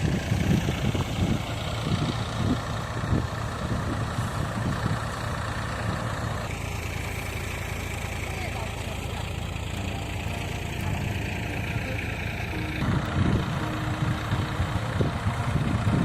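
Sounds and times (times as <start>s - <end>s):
heavy engine running: 0.0s - 16.0s.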